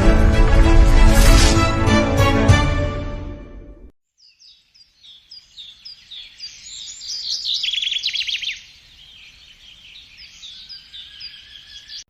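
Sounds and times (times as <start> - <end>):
birds chirping: 4.1 - 12.0
bird trill: 4.2 - 12.0.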